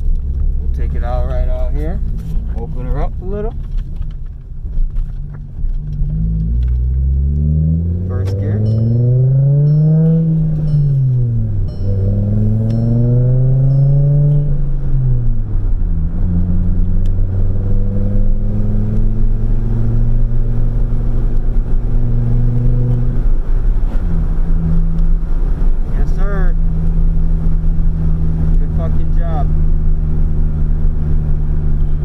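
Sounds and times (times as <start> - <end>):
car exhaust accelerating: 0.0 - 32.0.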